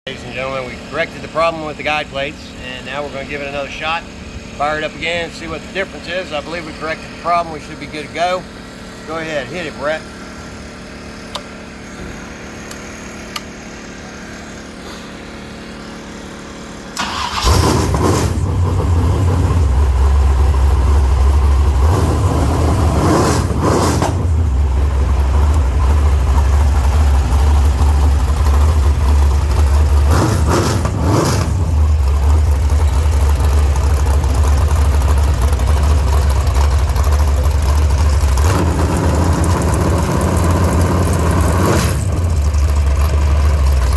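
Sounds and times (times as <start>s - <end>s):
race engine throbbing: 16.8s - 43.9s.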